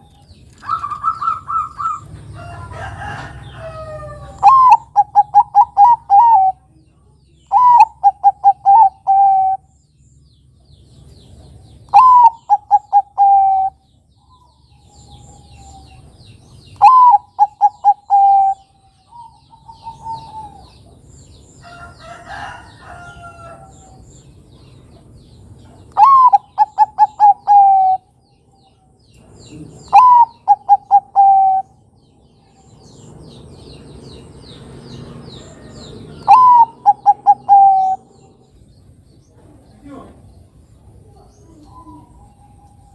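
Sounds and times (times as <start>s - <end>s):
different bird call: 0.0s - 2.1s, 2.7s - 6.6s, 7.5s - 9.8s, 11.9s - 16.0s, 16.7s - 20.8s, 25.9s - 28.2s, 29.8s - 31.8s, 35.4s - 38.3s
faint small birds chirping: 0.0s - 42.9s
dove cooing: 0.6s - 2.1s, 3.8s - 6.7s, 7.5s - 9.7s, 11.9s - 13.8s, 16.8s - 21.0s, 25.9s - 28.1s, 29.5s - 31.8s, 35.6s - 38.5s.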